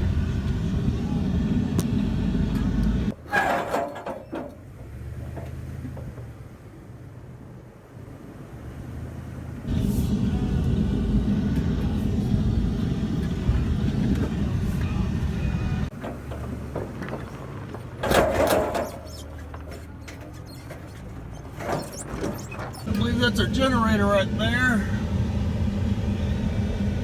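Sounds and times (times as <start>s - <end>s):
vehicle rumbling over rough track: 0.0s - 27.0s
short rattles: 3.1s - 6.2s, 15.9s - 23.4s.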